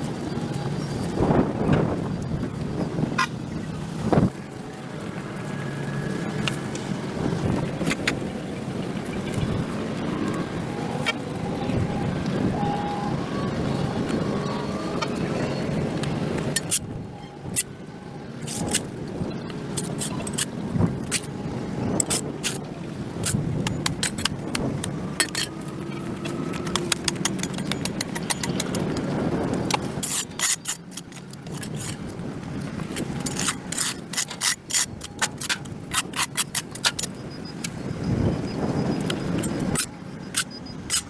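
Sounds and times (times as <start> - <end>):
tool scraping concrete: 19.8 - 21.3, 29.7 - 32.0, 32.9 - 37.1, 39.4 - 41.0.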